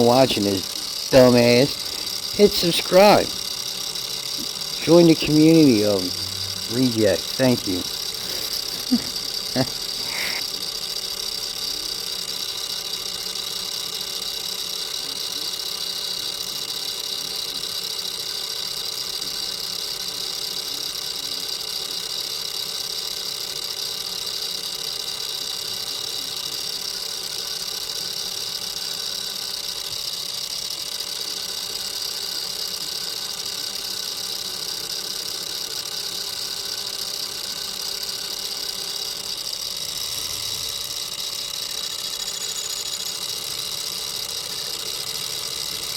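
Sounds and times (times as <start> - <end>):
milling machine humming: 0.0 - 15.9, 27.0 - 45.9.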